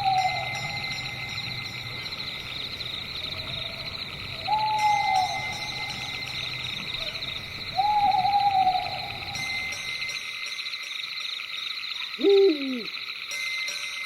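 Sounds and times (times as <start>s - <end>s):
owl hooting: 0.0s - 1.6s, 3.0s - 9.7s, 12.2s - 13.0s
night insects chirring: 0.0s - 14.0s.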